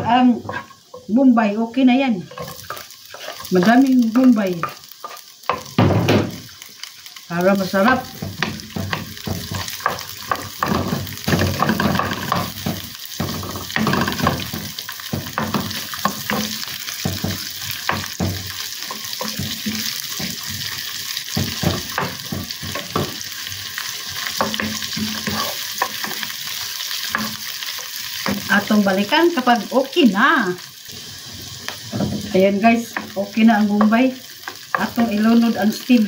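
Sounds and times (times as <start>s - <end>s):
wooden spoon scraping a pan: 0.0s - 1.3s, 2.1s - 5.8s, 7.7s - 28.8s
onions sizzling in hot oil: 0.0s - 36.0s.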